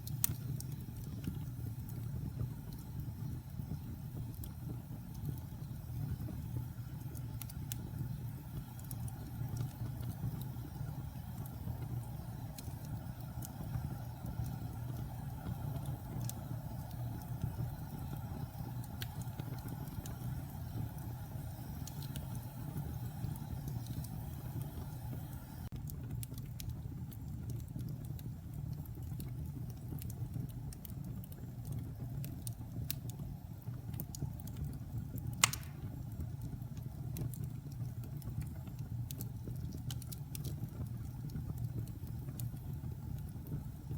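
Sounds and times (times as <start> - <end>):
burning wood crackling: 0.0 - 43.9
low rumble of flames: 0.0 - 43.9
loud wood pop: 35.4 - 35.8.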